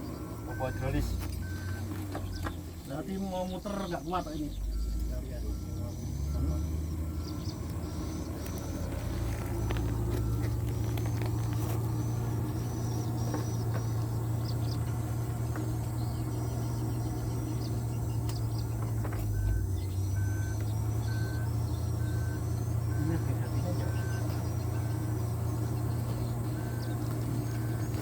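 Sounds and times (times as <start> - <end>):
diesel truck engine running: 0.0 - 28.0
faint high chirp: 0.0 - 28.0
short beeps: 0.4 - 2.5, 3.7 - 14.2, 19.2 - 28.0.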